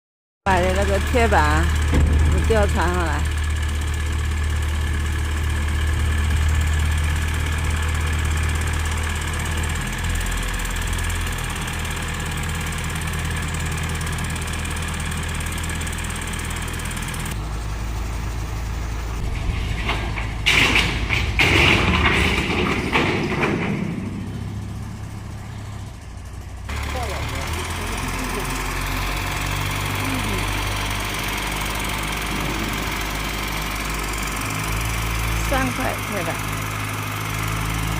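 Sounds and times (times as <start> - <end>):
large engine humming: 0.5 - 37.9
irregular clattering: 19.2 - 25.5.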